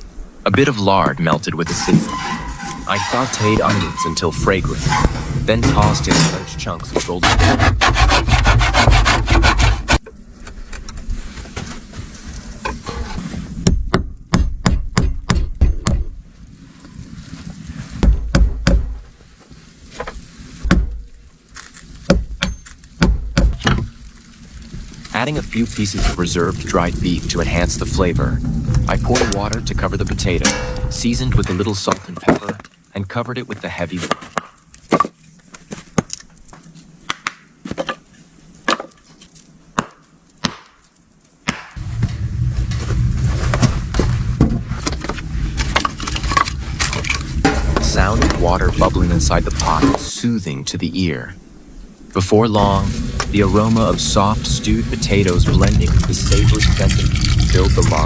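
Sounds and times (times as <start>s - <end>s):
sharp knocks and thuds: 12.9s - 16.3s, 17.9s - 19.1s, 20.0s - 21.1s, 22.0s - 24.0s
stew bubbling in pot: 52.7s - 58.0s.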